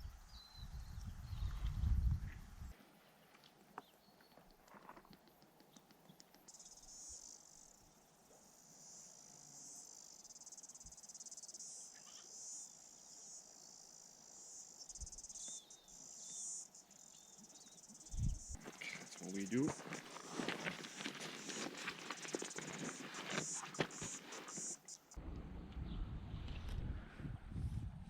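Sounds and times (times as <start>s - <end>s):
insects chirring: 4.1s - 25.2s.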